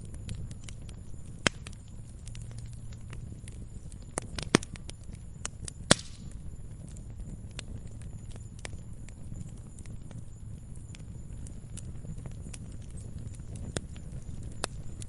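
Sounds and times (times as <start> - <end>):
fire crackling and popping: 0.0 - 15.0
low rumble of fire: 0.0 - 15.0.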